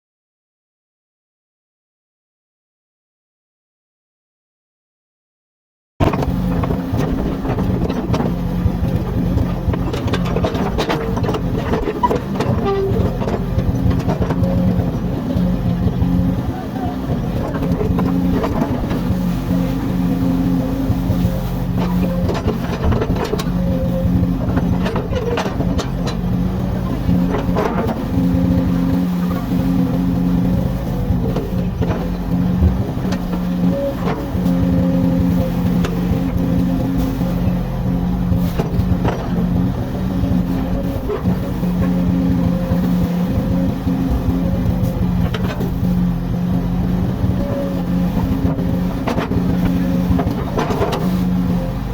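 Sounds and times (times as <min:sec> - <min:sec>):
diesel engine drone: 0:06.0 - 0:51.9
short squeals: 0:11.8 - 0:13.2.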